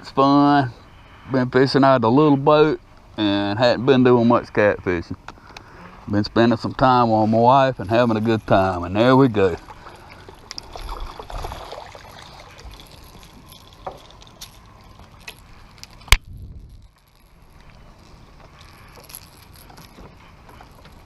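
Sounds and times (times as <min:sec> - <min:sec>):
light clicks and rattles: 0:12.2 - 0:21.0.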